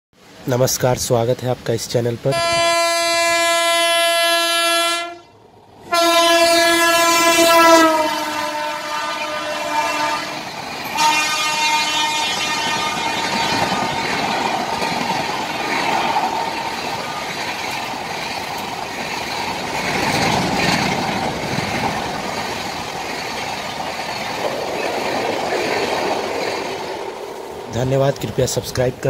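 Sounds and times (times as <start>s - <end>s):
train coaches rumbling past: 0.2s - 29.0s
train horn: 2.3s - 5.3s, 5.9s - 14.0s.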